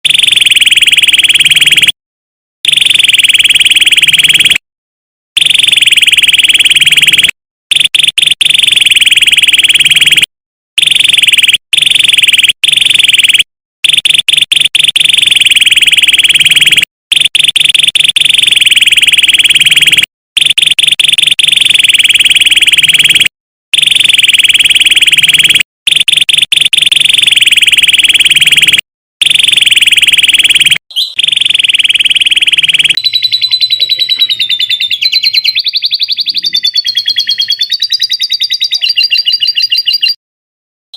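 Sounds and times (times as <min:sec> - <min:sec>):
canary singing trills: 0:30.9 - 0:31.3, 0:32.5 - 0:40.2.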